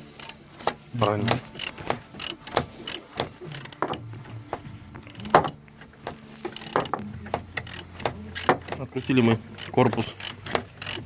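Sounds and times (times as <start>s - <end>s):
ratchet wrench clicking: 0.1s - 0.4s, 1.0s - 4.0s, 5.1s - 5.6s, 6.5s - 11.0s.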